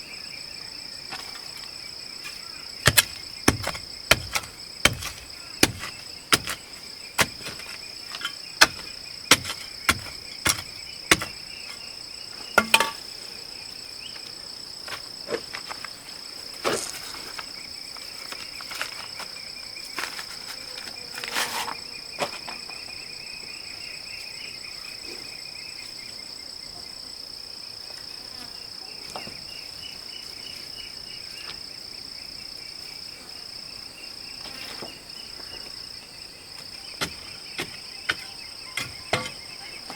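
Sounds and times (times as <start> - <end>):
crickets chirping: 0.0 - 39.9
sharp knocks: 2.9 - 7.7, 8.6 - 11.4, 12.6 - 13.0.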